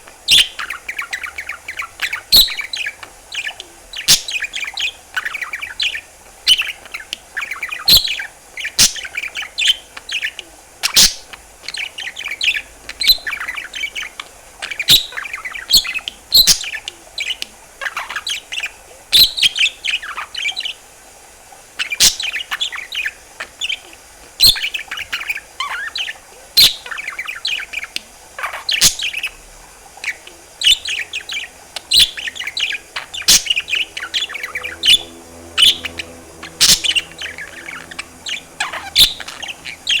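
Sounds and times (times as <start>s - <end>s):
budgerigar warbling and chattering: 0.3s - 20.8s, 21.8s - 40.0s.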